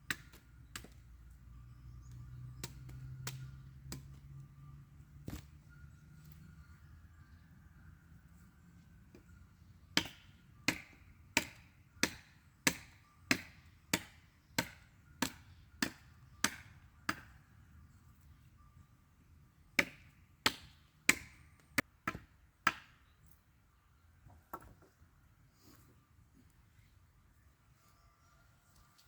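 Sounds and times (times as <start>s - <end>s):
tool striking wood: 10.0s - 17.3s.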